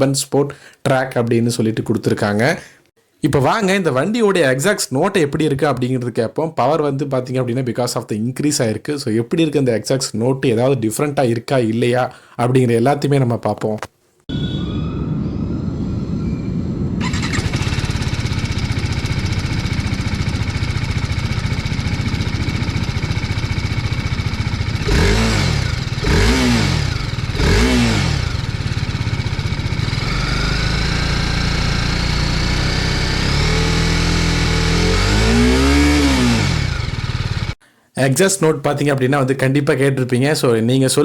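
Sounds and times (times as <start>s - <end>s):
motorcycle engine idling and revving: 17.0s - 37.6s.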